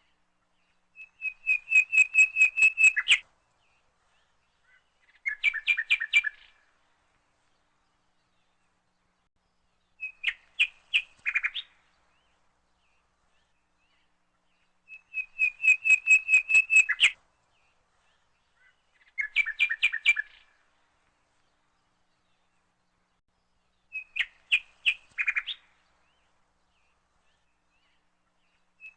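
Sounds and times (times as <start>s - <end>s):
bird chirping rapidly: 1.0s - 3.2s, 14.9s - 17.1s.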